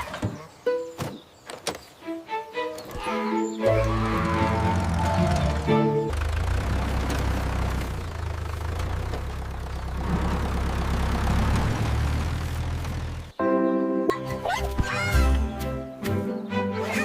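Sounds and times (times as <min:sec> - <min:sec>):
tractor engine humming: 0:02.6 - 0:13.4.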